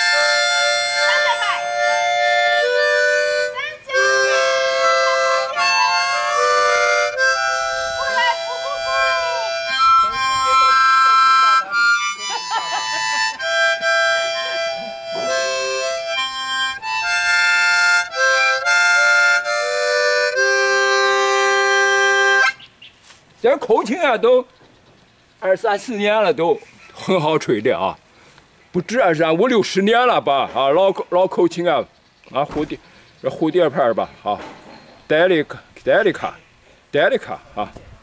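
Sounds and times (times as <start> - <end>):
harmonica playing chords: 0.0 - 22.6.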